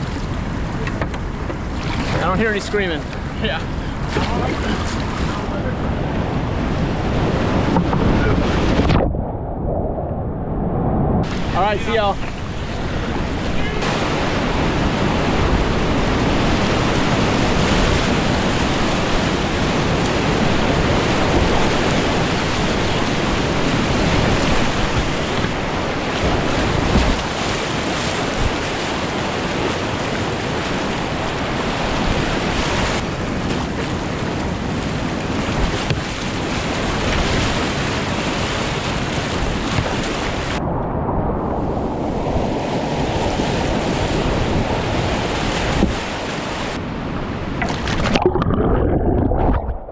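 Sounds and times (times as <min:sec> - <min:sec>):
wind noise on microphone: 0:00.0 - 0:49.9
whitewater rushing: 0:11.2 - 0:33.0.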